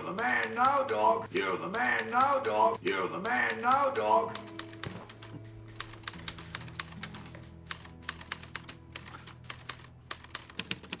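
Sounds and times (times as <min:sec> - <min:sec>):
typewriter keys clicking: 0:00.4 - 0:00.9, 0:03.2 - 0:11.0.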